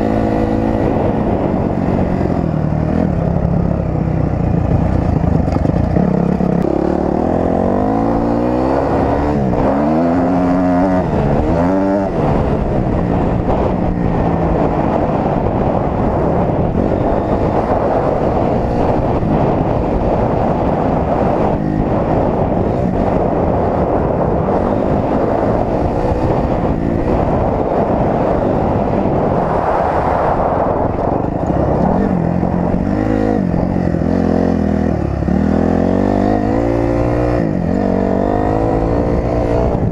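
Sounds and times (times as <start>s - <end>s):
steady rushing noise: 0.0s - 39.9s
dirt bike engine revving: 4.3s - 39.9s.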